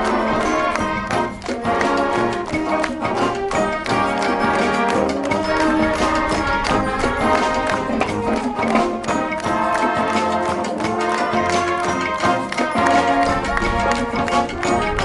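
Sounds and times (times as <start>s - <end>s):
brass sustaining chords: 0.0s - 15.0s
marching drums: 0.0s - 15.0s.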